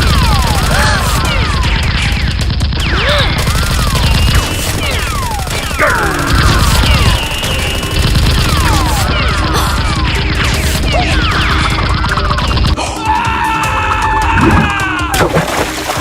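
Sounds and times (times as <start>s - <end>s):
rapid gunfire effects: 0.0s - 12.8s.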